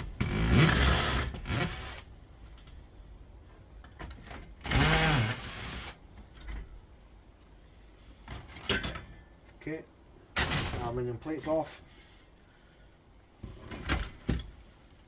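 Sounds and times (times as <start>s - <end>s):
small power tool motor: 4.7s - 6.0s.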